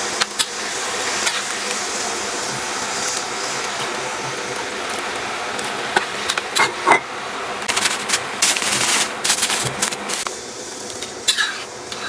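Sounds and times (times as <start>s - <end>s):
wok sizzling: 0.0s - 12.0s.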